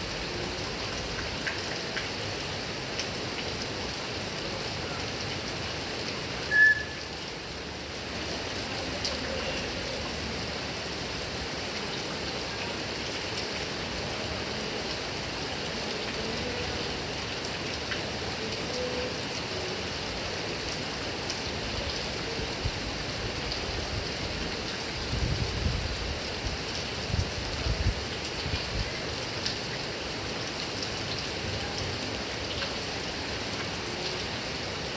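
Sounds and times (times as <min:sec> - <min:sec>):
heavy rain on grass and trees: 0:00.0 - 0:34.9
brief high chirp: 0:06.5 - 0:07.0.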